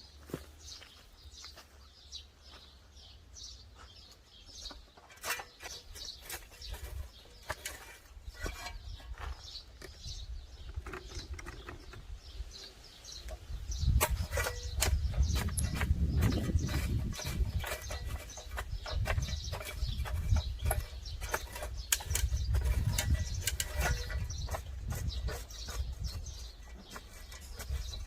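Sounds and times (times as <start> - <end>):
small birds chirping: 0.0 - 28.0
scattered clicks and knocks: 14.0 - 28.0.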